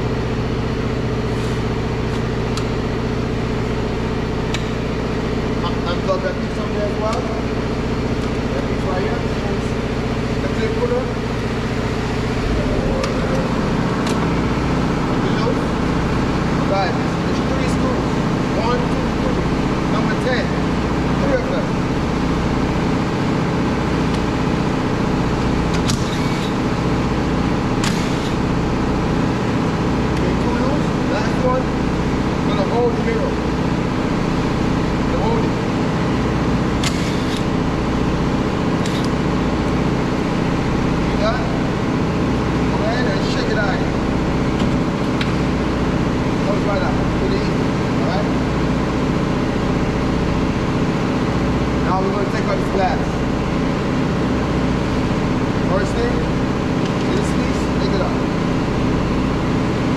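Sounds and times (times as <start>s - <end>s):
low machine drone: 0.0s - 59.9s
motor droning: 7.1s - 19.4s.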